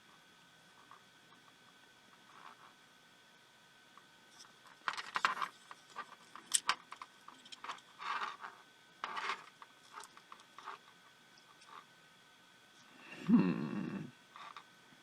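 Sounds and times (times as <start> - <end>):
small parts clicking and scraping: 2.2 - 2.7, 4.3 - 11.9, 14.4 - 14.7.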